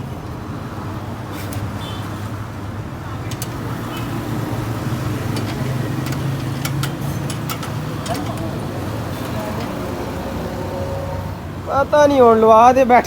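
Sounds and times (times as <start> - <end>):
engine running: 3.0 - 11.7.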